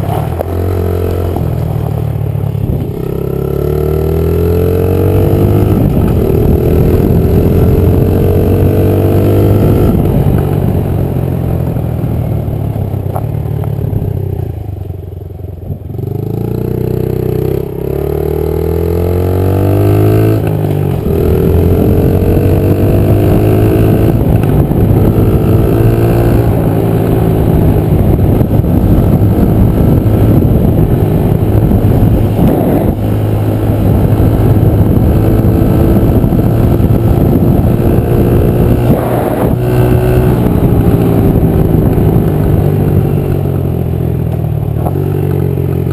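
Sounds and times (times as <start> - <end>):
dirt bike engine accelerating: 16.0 - 45.9.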